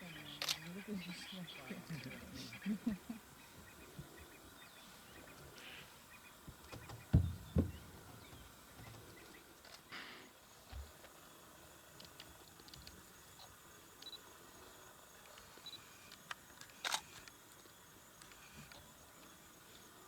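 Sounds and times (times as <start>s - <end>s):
faint bird calls: 0.0s - 10.2s
dull low thumps: 6.8s - 8.6s.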